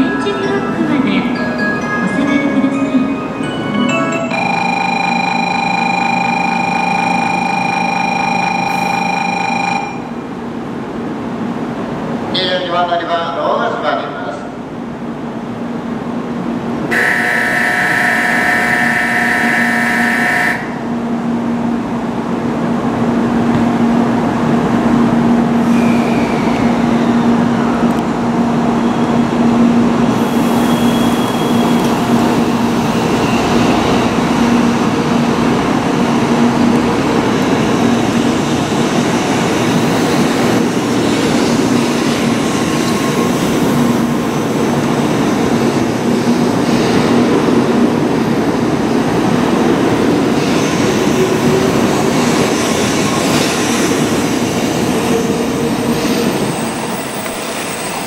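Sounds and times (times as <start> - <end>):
train electrical hum: 2.2 - 58.0
bright electronic tone: 4.3 - 10.2
rush of wheel and air noise: 21.6 - 28.9.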